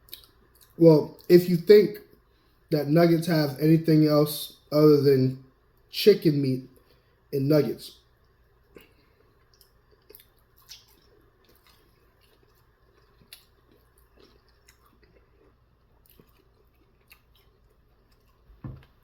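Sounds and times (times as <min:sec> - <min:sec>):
chewing and wet mouth clicks: 0:00.0 - 0:01.3, 0:08.2 - 0:18.9.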